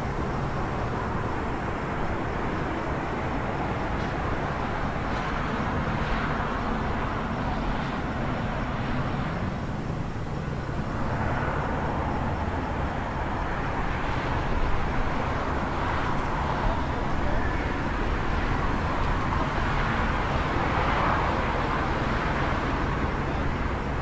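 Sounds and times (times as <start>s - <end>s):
low rumble of road traffic: 0.0s - 24.0s
vehicles passing: 0.0s - 24.0s.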